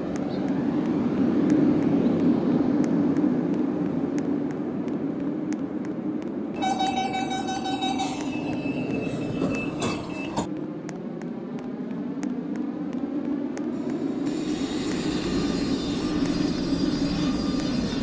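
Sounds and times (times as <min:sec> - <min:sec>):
commuter train rumbling: 0:06.5 - 0:10.5, 0:13.7 - 0:18.0
steady pitched tone: 0:06.6 - 0:10.4.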